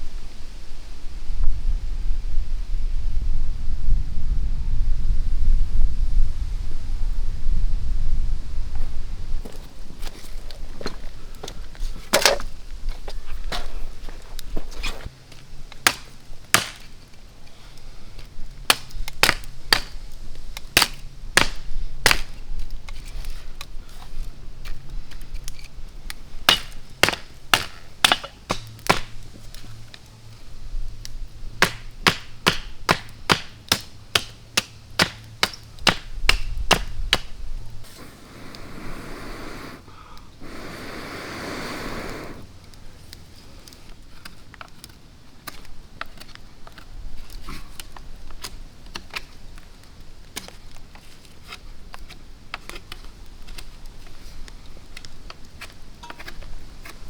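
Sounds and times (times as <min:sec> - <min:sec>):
chopping strikes on wood: 0:15.8 - 0:16.9, 0:18.7 - 0:20.0, 0:20.8 - 0:22.4, 0:26.5 - 0:29.2, 0:31.6 - 0:37.4
brief rushing hiss: 0:37.8 - 0:42.5.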